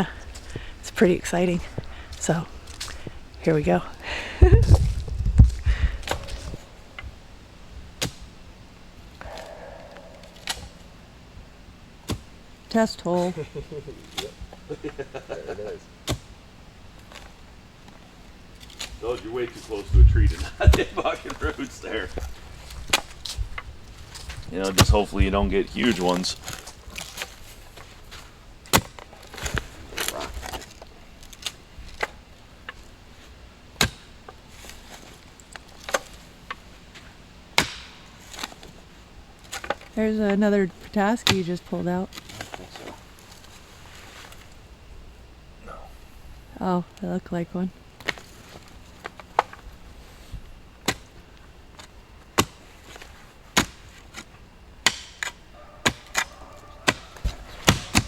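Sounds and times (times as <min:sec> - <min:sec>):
soil scraping: 0:00.0 - 0:07.2, 0:16.9 - 0:32.1
digging blade chopping soil: 0:12.0 - 0:12.3, 0:28.7 - 0:30.7, 0:37.6 - 0:38.6, 0:52.4 - 0:58.0
digging tool striking ground: 0:53.6 - 0:58.0.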